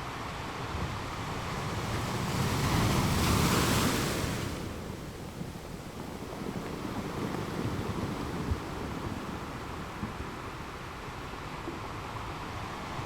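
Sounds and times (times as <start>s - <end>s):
ocean waves breaking on rocks: 0.8s - 10.5s.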